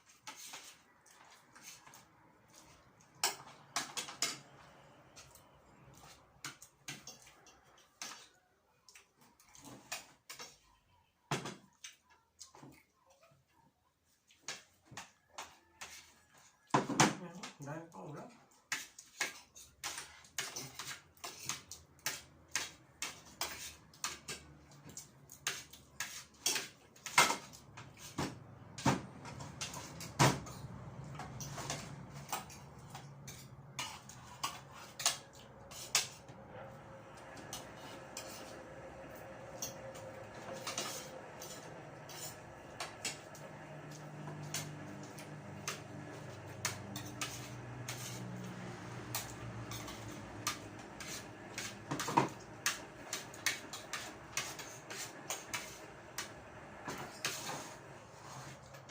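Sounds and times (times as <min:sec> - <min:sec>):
cutlery clinking on plates: 0:00.1 - 0:08.4, 0:18.7 - 0:28.3, 0:29.2 - 0:36.2, 0:39.2 - 0:56.3.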